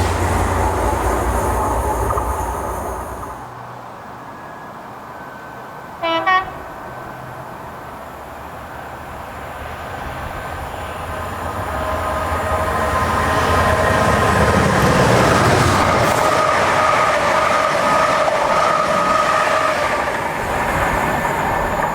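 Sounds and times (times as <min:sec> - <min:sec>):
diesel train approaching: 0:00.0 - 0:21.9
train horn blast: 0:06.0 - 0:06.8.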